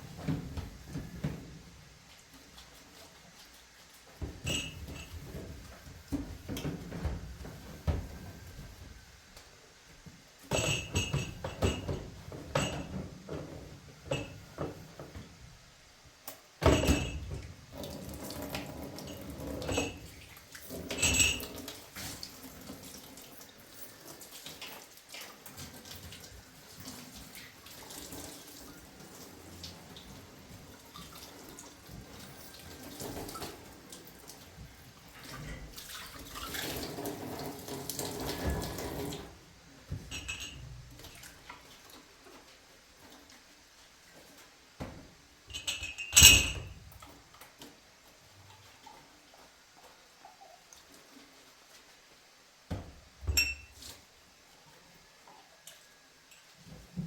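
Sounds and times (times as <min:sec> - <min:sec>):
running water: 0:16.7 - 0:56.0.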